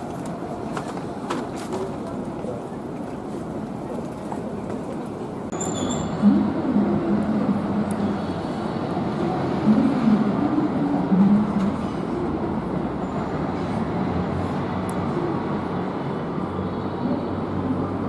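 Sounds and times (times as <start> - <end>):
train wheels on rail: 0.0 - 6.4.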